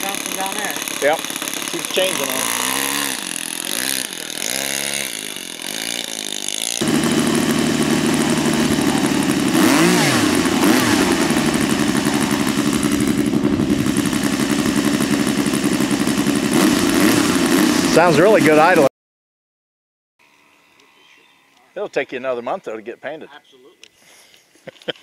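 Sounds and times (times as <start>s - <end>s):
model airplane engine idling: 0.0s - 18.9s.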